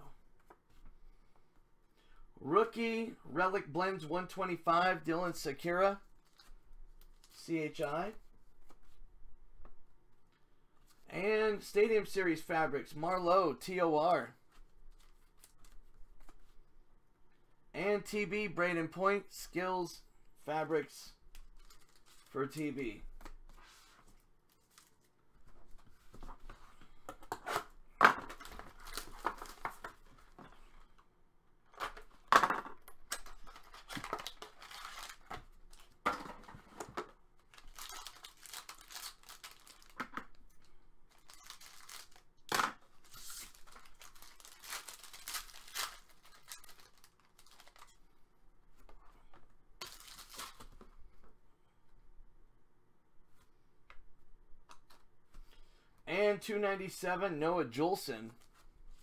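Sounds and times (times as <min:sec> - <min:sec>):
cards being handled: 0:21.3 - 0:30.9, 0:33.0 - 0:48.0
card pack wrappers tearing: 0:33.1 - 0:36.0, 0:37.4 - 0:40.0, 0:41.1 - 0:42.3, 0:43.0 - 0:47.9, 0:49.8 - 0:50.7.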